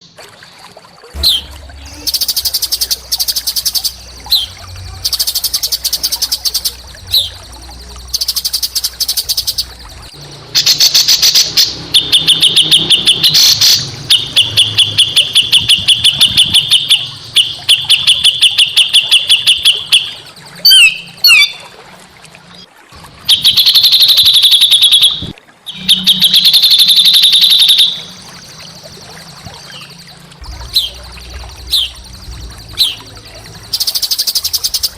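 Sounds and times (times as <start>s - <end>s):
songbird singing harsh fast song: 1.2s - 21.6s, 25.8s - 34.9s.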